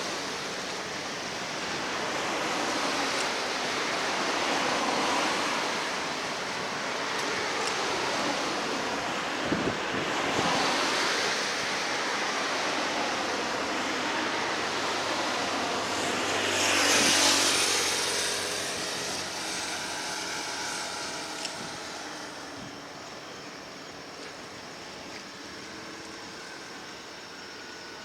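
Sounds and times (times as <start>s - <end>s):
vehicle passing by: 10.2s - 22.6s.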